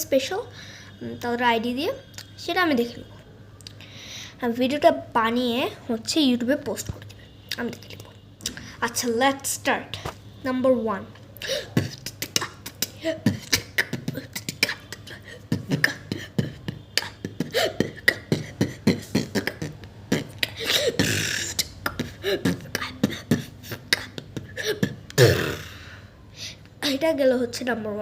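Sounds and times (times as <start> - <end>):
person beatboxing: 11.5 - 25.8
sustained mouth hissing: 17.0 - 24.2.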